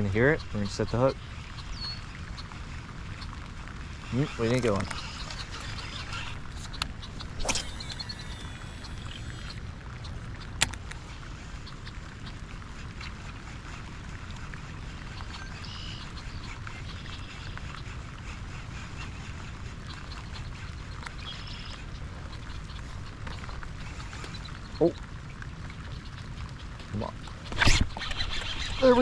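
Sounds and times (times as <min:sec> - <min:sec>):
faint high calls: 0:04.1 - 0:09.6.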